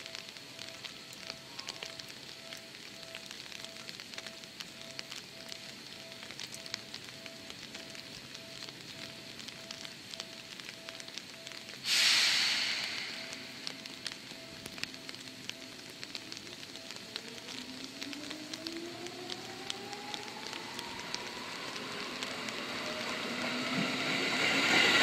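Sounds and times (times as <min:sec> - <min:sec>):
faint tone beeping: 0:00.0 - 0:25.0
light crackling: 0:00.0 - 0:25.0
train air hiss: 0:11.8 - 0:13.7, 0:22.6 - 0:25.0.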